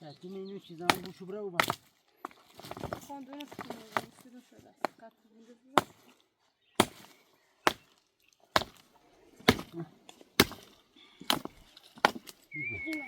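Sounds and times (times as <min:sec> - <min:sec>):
hand tool chopping strikes: 0:00.9 - 0:01.9, 0:06.8 - 0:07.1, 0:07.7 - 0:07.9, 0:08.5 - 0:08.8, 0:09.4 - 0:09.8, 0:10.4 - 0:10.7, 0:11.3 - 0:12.4.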